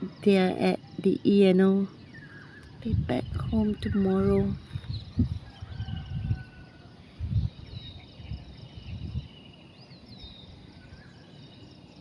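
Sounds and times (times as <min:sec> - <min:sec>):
songbirds chirping and singing: 0:00.0 - 0:12.0
microphone wind rumble: 0:02.6 - 0:09.4.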